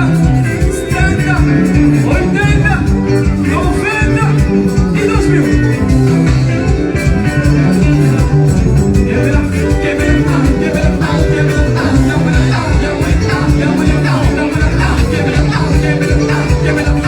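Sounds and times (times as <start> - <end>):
band playing dance music: 0.0 - 17.0
singing: 9.0 - 17.0.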